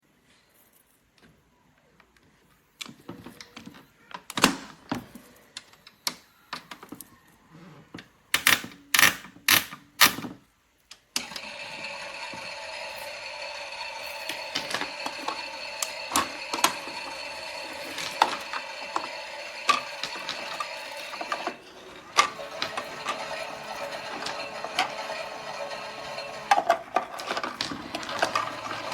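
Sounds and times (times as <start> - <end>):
toy drum geared whirring: 11.2 - 28.9.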